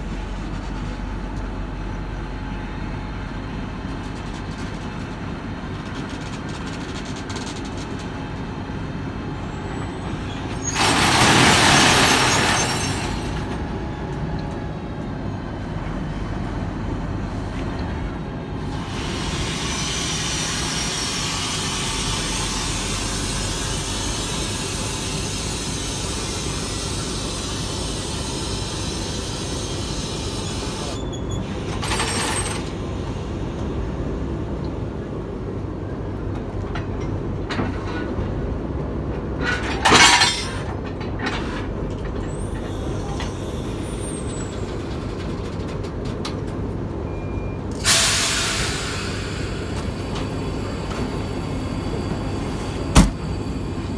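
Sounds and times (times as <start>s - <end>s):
diesel locomotive idling: 0.0s - 53.9s
air brake hiss: 18.6s - 34.0s, 47.8s - 53.9s.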